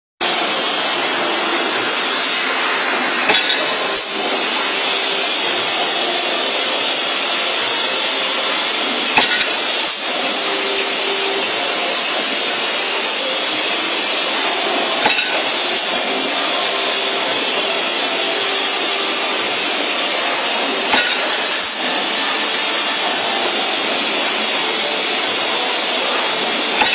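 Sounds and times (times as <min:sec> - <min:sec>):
wire bending machine whirring: 0:00.2 - 0:26.9
sharp machine clack: 0:02.1 - 0:06.2, 0:07.8 - 0:10.3, 0:14.5 - 0:22.6, 0:25.5 - 0:26.9.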